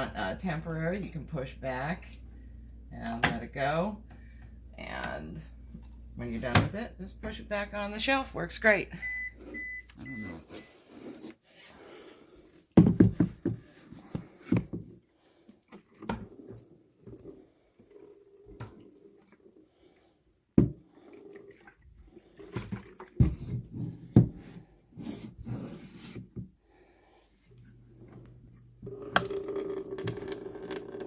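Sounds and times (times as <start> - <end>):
liquid splashing and dripping: 29.2 - 31.0.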